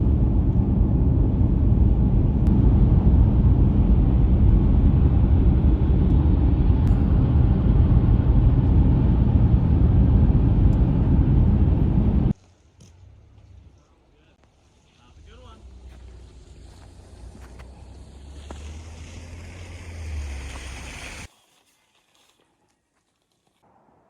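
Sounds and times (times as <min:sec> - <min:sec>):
loud low rumbling: 0:00.0 - 0:12.4.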